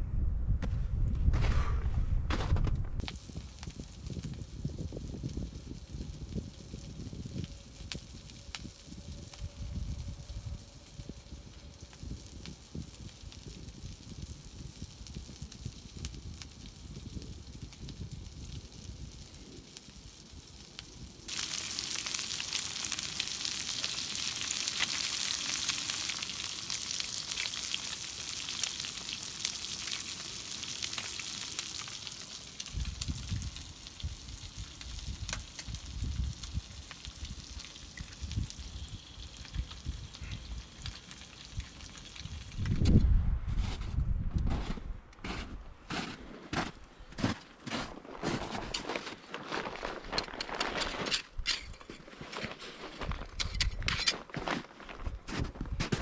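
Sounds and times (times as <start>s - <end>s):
low rumbling: 0.0s - 12.7s
food sizzling in a pan: 3.0s - 42.8s.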